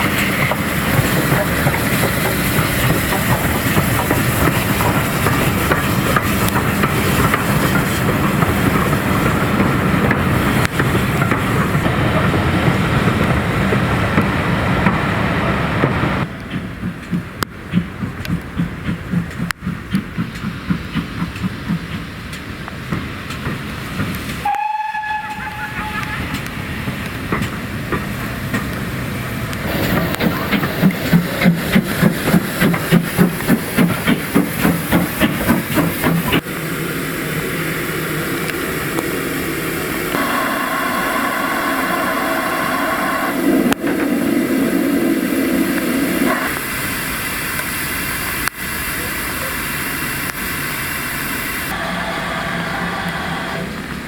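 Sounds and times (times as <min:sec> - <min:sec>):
locomotive engine noise and hiss: 0:00.0 - 0:54.0
steam locomotive chuffing: 0:00.0 - 0:54.0
voices: 0:48.2 - 0:50.5.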